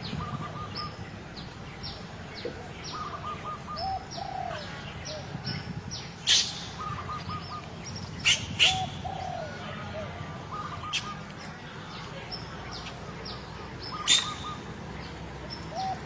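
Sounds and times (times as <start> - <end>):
birds chirping: 0.0 - 16.0
bird cooing: 2.5 - 5.4, 8.5 - 11.2, 15.7 - 16.0.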